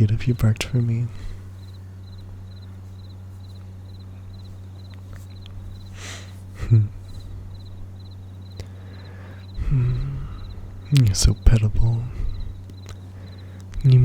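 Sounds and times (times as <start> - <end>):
crickets chirping: 0.0 - 14.0
low steady hum: 0.0 - 14.0
soft breath: 1.1 - 2.0, 4.0 - 7.7, 8.6 - 10.9, 12.0 - 13.8.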